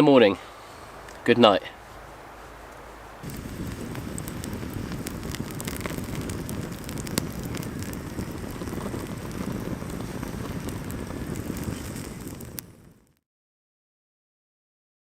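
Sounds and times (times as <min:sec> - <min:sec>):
campfire crackling and popping: 0:02.7 - 0:13.2.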